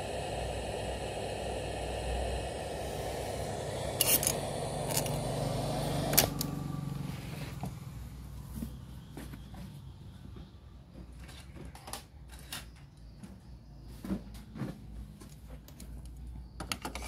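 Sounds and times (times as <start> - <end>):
static hiss: 0.0 - 7.6
low hum: 0.0 - 8.4.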